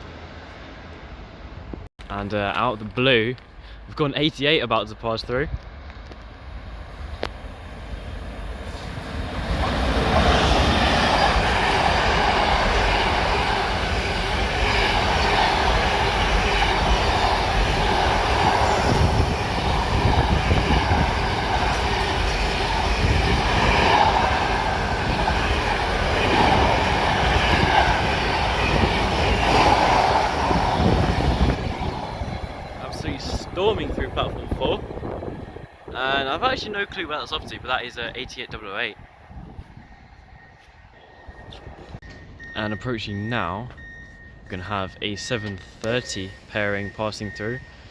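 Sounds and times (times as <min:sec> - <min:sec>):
train passing at speed: 0:00.0 - 0:01.9, 0:05.4 - 0:47.9.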